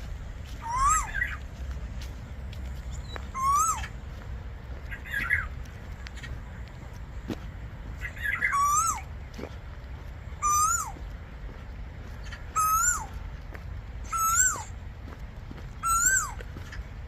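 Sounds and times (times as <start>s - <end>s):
bird calling: 0.0s - 14.9s, 15.6s - 17.0s
bird twittering: 0.6s - 1.5s, 2.8s - 4.0s, 4.8s - 6.4s, 8.0s - 9.1s, 10.3s - 11.1s, 12.1s - 13.3s, 14.0s - 14.8s, 15.8s - 16.9s.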